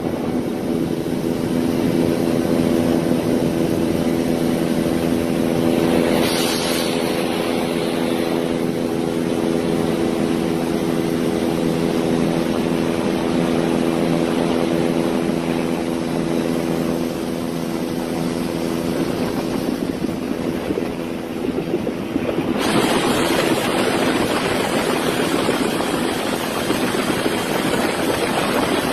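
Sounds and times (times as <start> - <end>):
loud rushing hiss: 4.6 - 11.6, 22.6 - 28.9
heavy rain hiss: 5.5 - 10.2, 22.6 - 28.9.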